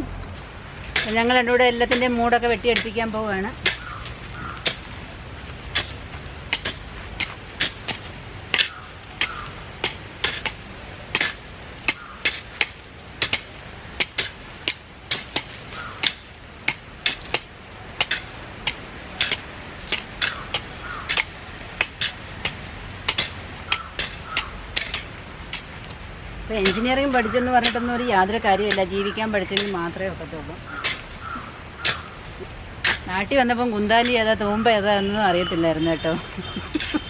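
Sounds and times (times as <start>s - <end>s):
hoe chopping into soil: 5.7s - 22.1s.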